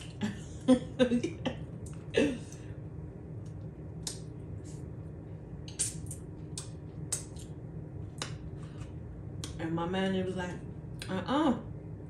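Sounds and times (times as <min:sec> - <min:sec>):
steady low hum: 0:00.0 - 0:12.0
person chewing with lip smacks: 0:05.7 - 0:09.6.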